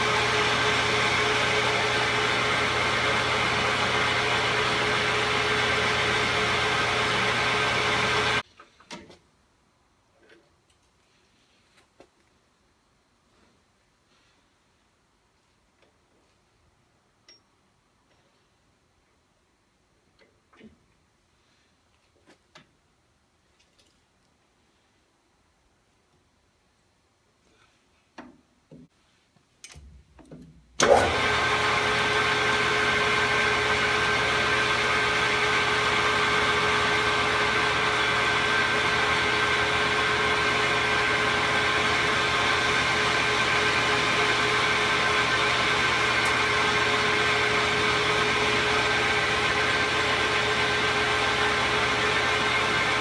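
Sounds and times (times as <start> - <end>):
metal lathe whining: 0.0 - 8.4, 30.8 - 53.0.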